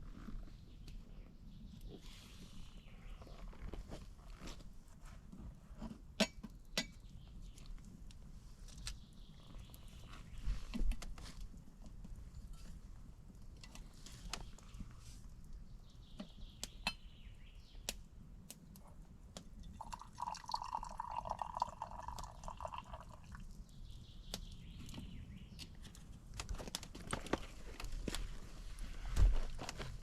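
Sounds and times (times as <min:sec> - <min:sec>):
liquid pouring: 0:19.8 - 0:23.4.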